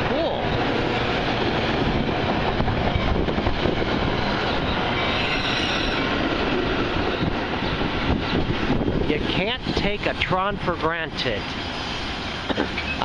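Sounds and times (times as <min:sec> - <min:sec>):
train rumbling on rails: 0:00.0 - 0:13.0
high wheel squeal: 0:04.2 - 0:06.3.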